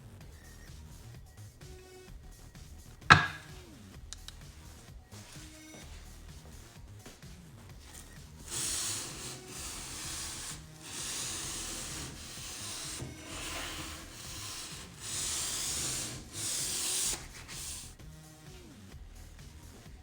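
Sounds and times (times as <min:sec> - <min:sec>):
sandpaper rubbing a surface: 0:07.8 - 0:18.0.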